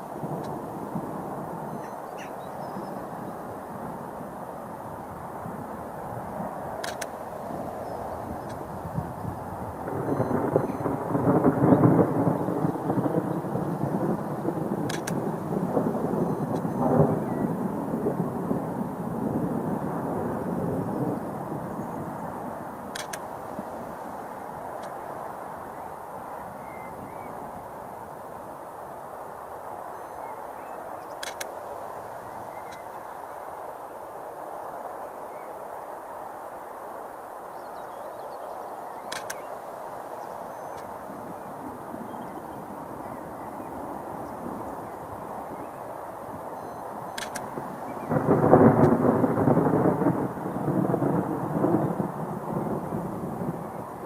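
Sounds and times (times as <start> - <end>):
rolling thunder: 0.0 - 30.3, 40.4 - 54.0
faint bird chirps: 1.6 - 3.4, 10.0 - 11.0, 29.9 - 31.4, 32.2 - 33.4, 37.4 - 45.9, 46.6 - 48.3
sharp clicks: 6.8 - 7.2, 14.8 - 15.2, 22.9 - 23.3, 31.2 - 31.5, 39.1 - 39.5, 47.1 - 47.6.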